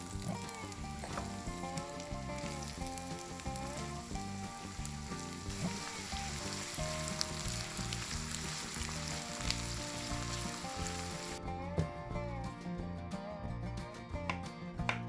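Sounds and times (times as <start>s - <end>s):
vegetables sizzling in oil: 0.0s - 11.4s
background music: 0.0s - 15.0s.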